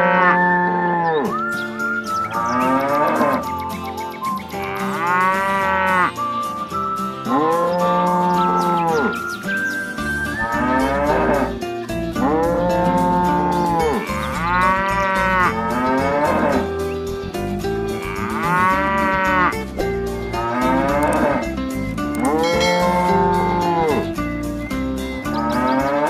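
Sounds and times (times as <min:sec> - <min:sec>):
cow mooing: 0:00.0 - 0:01.4, 0:02.3 - 0:03.5, 0:04.6 - 0:06.2, 0:10.4 - 0:11.6, 0:12.2 - 0:16.7, 0:17.9 - 0:19.6, 0:20.3 - 0:21.5, 0:22.2 - 0:24.1, 0:25.4 - 0:26.0
background music: 0:00.0 - 0:26.0.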